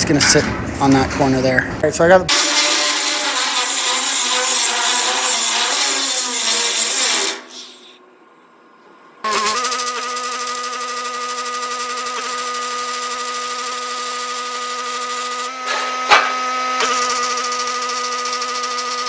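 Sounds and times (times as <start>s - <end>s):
power tool whine: 2.3s - 8.0s, 9.2s - 19.0s
hiss: 6.5s - 8.0s.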